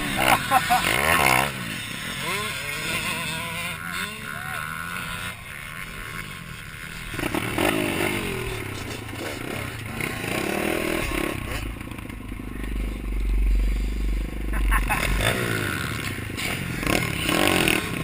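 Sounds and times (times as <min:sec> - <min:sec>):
motorcycle engine revving: 0:00.0 - 0:18.0
heavy low rumble: 0:11.1 - 0:16.8.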